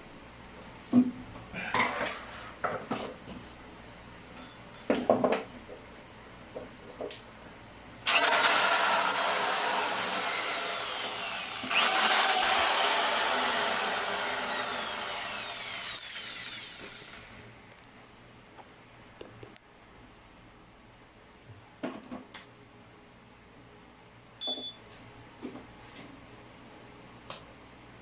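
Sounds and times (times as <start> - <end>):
electric drill boring: 8.1 - 17.4.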